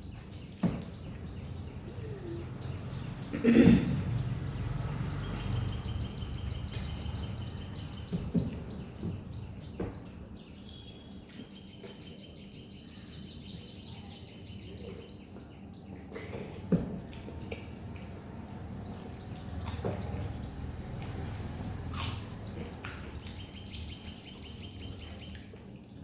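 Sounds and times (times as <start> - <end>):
high bird chirps: 0.0 - 3.4, 4.0 - 15.9, 18.8 - 25.6
chewing and mouth noises: 17.0 - 23.5.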